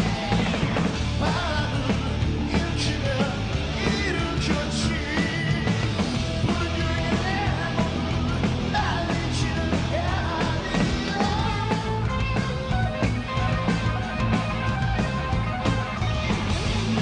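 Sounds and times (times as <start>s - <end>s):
live rock band playing: 0.0s - 17.0s
person singing: 1.2s - 12.0s.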